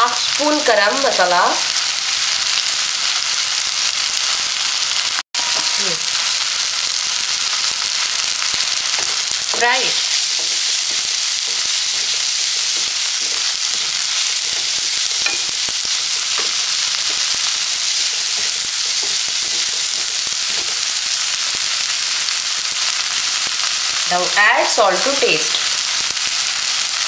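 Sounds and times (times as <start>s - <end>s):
food sizzling in hot oil: 0.0s - 27.0s
spatula stirring in pan: 7.8s - 22.0s.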